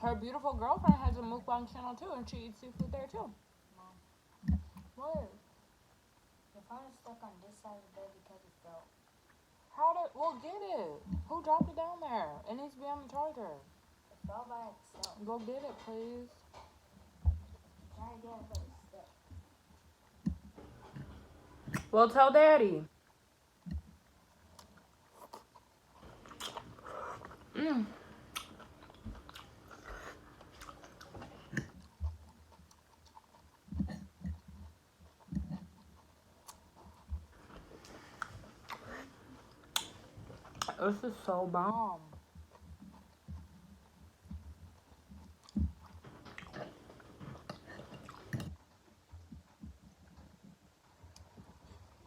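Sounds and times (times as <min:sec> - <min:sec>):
close chewing mouth sounds: 0:00.0 - 0:03.5, 0:13.0 - 0:22.0, 0:22.9 - 0:52.0.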